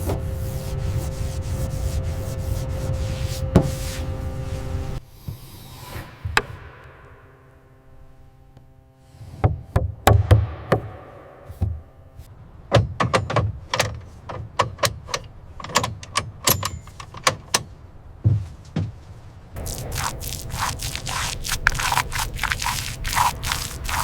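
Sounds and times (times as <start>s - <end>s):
knocks and clanks of assembly work: 12.7s - 19.0s.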